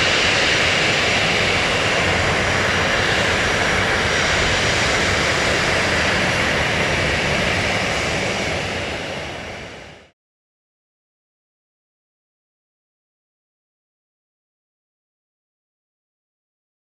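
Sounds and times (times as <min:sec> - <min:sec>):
rushing jet engine noise: 0:00.0 - 0:10.2.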